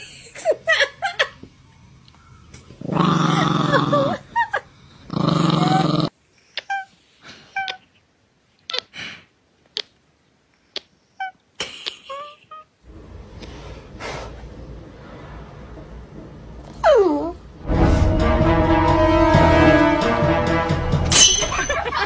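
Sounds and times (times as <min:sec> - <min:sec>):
small dog growling: 0:02.8 - 0:04.2, 0:05.1 - 0:06.1
steady low hiss: 0:12.7 - 0:22.0.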